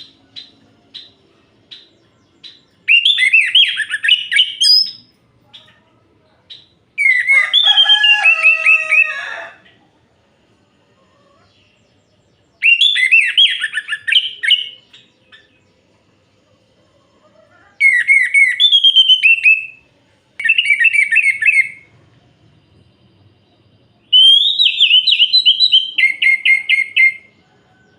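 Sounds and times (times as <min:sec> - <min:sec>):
thrush singing whistled notes: 0:00.0 - 0:05.1, 0:06.6 - 0:09.1, 0:12.6 - 0:15.6, 0:17.8 - 0:27.9.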